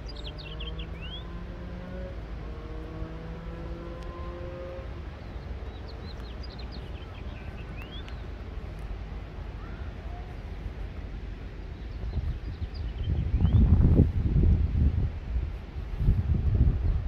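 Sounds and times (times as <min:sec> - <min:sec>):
small birds chirping: 0:00.0 - 0:02.2, 0:02.9 - 0:10.6, 0:11.4 - 0:13.9
low outdoor rumble: 0:00.0 - 0:17.0.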